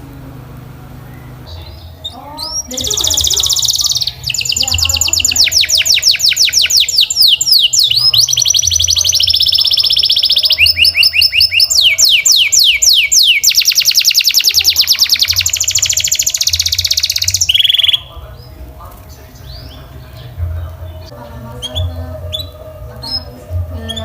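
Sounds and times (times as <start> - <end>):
canary singing: 0.0 - 24.0.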